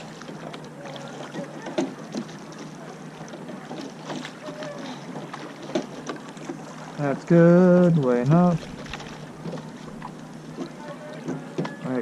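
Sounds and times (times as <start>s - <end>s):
water washing: 0.0s - 12.0s
wind: 0.0s - 12.0s
faint voices: 0.3s - 5.7s, 10.4s - 12.0s
oars knocking in oarlocks: 1.2s - 6.7s.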